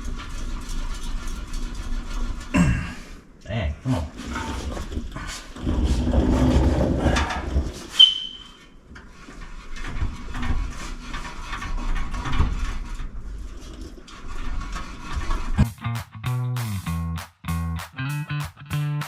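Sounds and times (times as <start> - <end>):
metal scraping and knocking: 0.0 - 2.6, 4.0 - 15.7.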